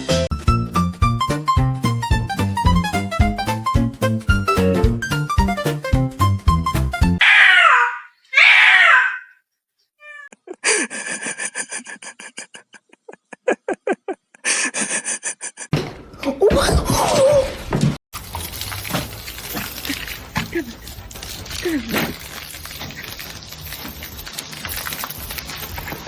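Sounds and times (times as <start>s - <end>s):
cat meowing: 7.2s - 9.3s
wavering cry: 7.2s - 9.4s.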